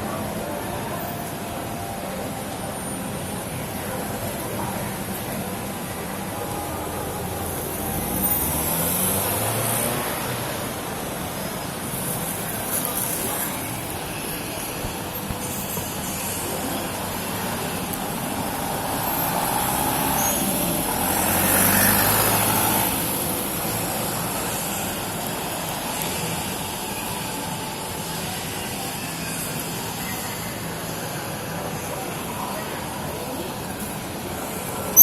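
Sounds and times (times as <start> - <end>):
street traffic noise: 0.0 - 35.0.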